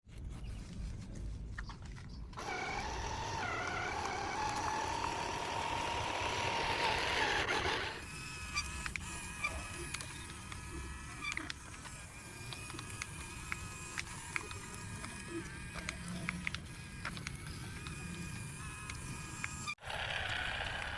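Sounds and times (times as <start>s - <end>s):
small electric motor whining: 2.3s - 20.9s
scattered clicks: 8.6s - 20.9s.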